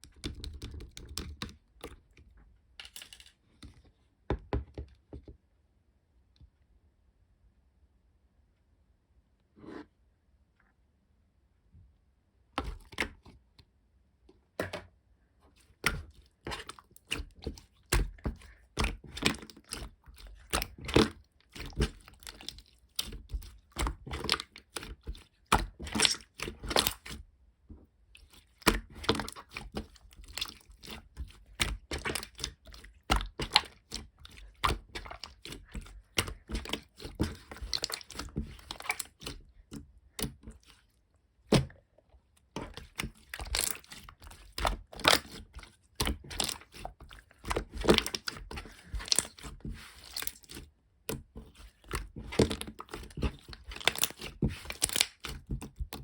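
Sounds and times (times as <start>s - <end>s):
slime squeezed by hand: 42.6s - 50.6s, 51.5s - 56.0s.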